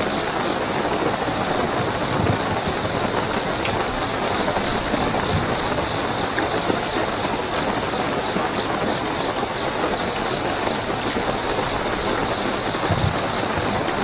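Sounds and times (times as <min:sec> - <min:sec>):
crickets trilling: 0:00.0 - 0:14.0
heavy rainfall: 0:00.0 - 0:14.0.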